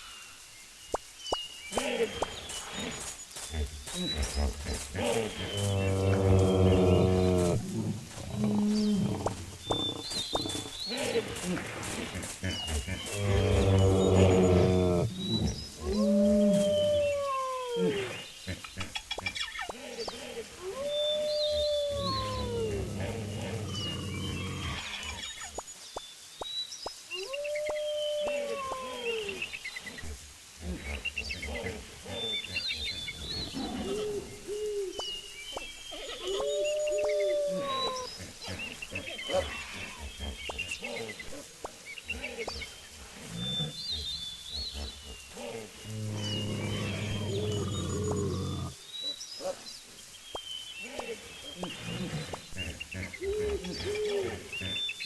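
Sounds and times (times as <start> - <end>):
birds cooing: 20.0 - 24.8, 36.0 - 41.4, 53.0 - 54.8.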